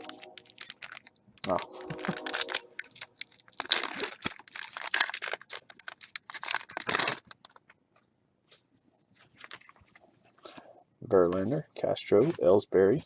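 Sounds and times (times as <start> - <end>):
trading cards and wrappers rustling: 0.0 - 7.8, 8.4 - 10.6.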